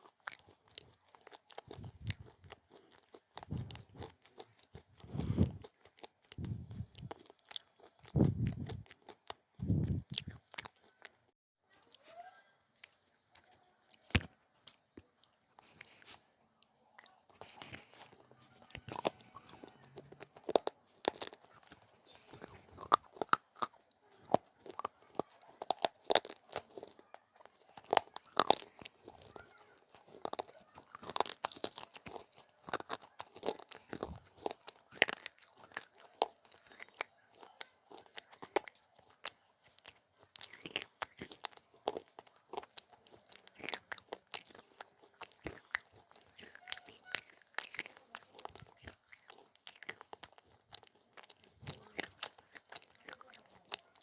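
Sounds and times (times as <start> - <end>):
crunching brittle clay: 0.0 - 11.3, 12.0 - 54.0
chewing: 0.0 - 54.0.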